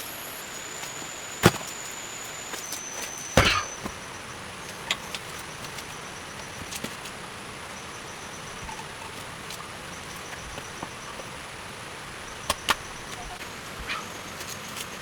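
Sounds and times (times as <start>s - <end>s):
chopping blows on wood: 1.4s - 1.8s, 3.4s - 3.9s.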